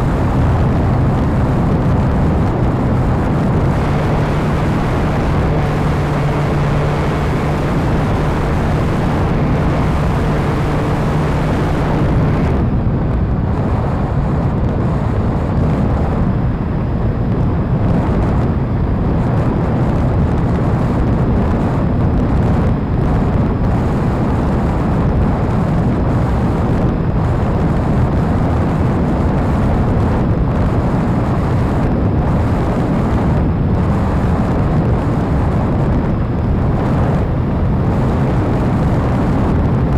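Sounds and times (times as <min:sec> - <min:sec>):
model airplane motor: 0:00.0 - 0:12.6
wind rumble on microphone: 0:00.0 - 0:39.9.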